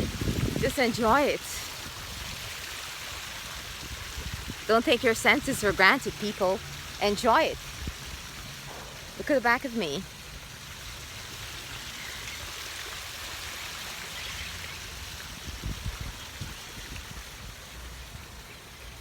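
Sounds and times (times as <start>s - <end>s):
pond water splashing: 0.0s - 19.0s
low thumps: 8.6s - 10.4s.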